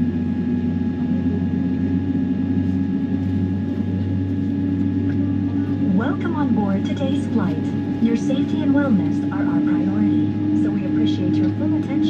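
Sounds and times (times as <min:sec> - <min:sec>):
airplane cabin low hum: 0:00.0 - 0:12.0
faint whining tones: 0:00.0 - 0:12.0.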